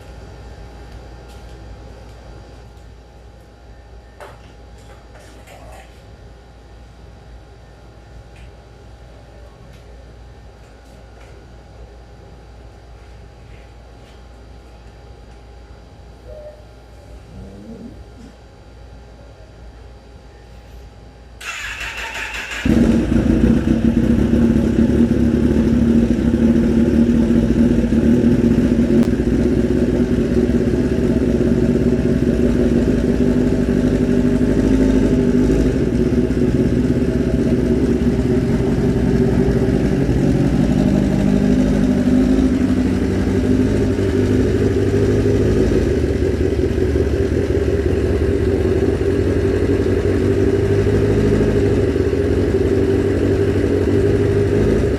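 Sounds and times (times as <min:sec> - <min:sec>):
electric starter cranking: 0:21.4 - 0:22.7
motorcycle engine idling: 0:21.4 - 0:54.9.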